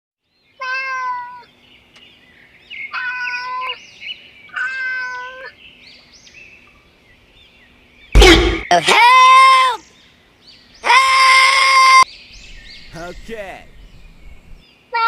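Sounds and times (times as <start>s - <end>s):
cat meowing: 0.6s - 1.5s, 2.9s - 3.8s, 4.5s - 5.5s.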